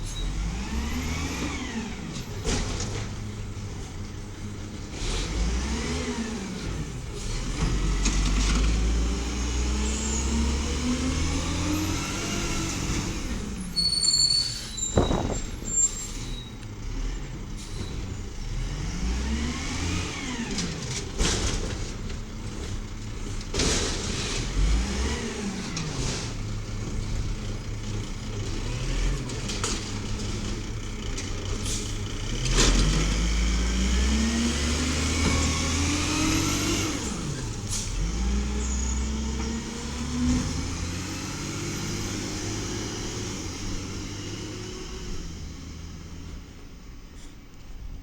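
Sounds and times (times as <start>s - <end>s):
truck engine revving: 0.2s - 17.6s, 18.4s - 46.5s
loud bang: 14.9s - 15.9s
small knocks: 15.0s - 15.6s.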